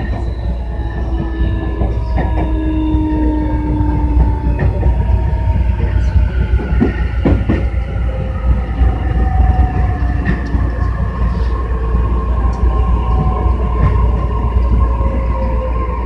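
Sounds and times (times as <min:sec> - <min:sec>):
rail-joint clacks: 0:00.0 - 0:05.2, 0:05.8 - 0:11.4
train wheels rumbling on rail: 0:00.0 - 0:16.0.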